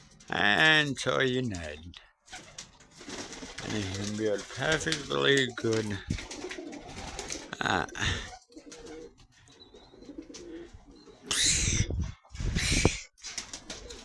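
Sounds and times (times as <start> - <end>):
rustling noises: 0.0 - 11.2
pigeons cooing: 2.2 - 14.0.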